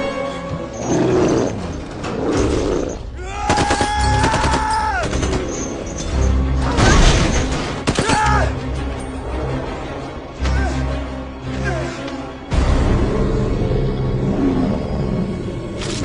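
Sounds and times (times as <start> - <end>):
action film music: 0.0 - 16.0
rapid gunfire: 3.5 - 5.6, 7.7 - 8.4.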